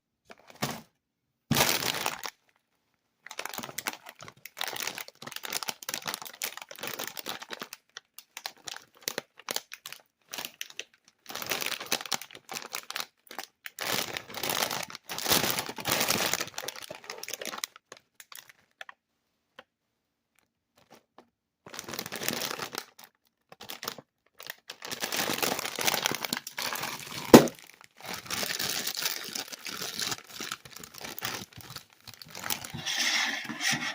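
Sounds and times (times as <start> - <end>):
snack bag crinkling: 1.5 - 2.5, 21.7 - 33.8
sharp crack: 27.2 - 27.6.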